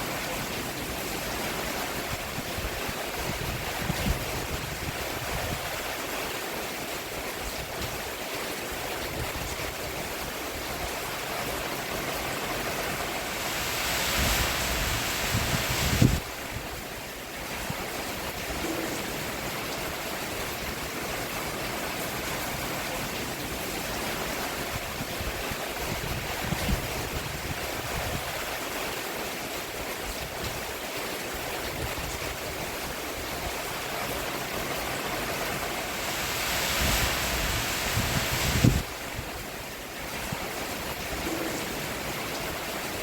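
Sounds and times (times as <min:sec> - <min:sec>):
rain falling on a roof: 0:00.0 - 0:43.0.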